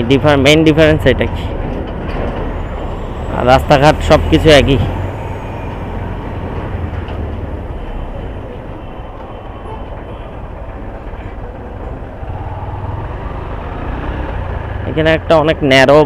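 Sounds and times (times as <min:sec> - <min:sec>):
wind and road noise: 0:00.0 - 0:16.0.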